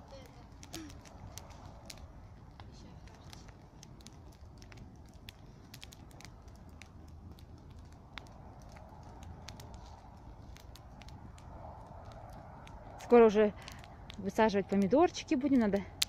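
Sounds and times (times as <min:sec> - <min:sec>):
fire crackling and popping: 0:00.0 - 0:16.0
low rumble of burning: 0:00.0 - 0:16.0.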